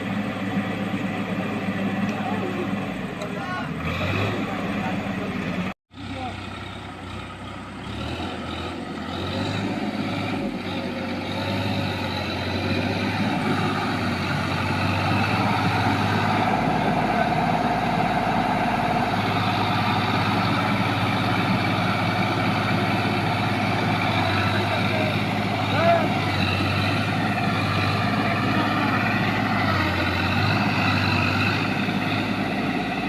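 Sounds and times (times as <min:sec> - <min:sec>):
tractor diesel engine under load: 0:00.0 - 0:33.0.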